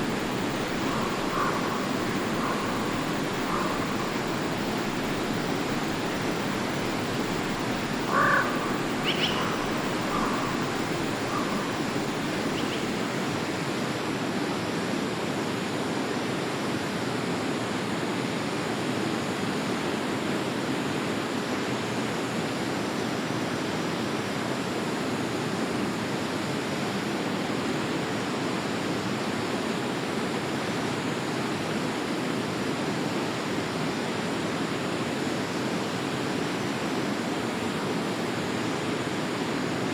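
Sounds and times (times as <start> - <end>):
stream flowing: 0.0 - 24.0
short calls: 8.0 - 13.0.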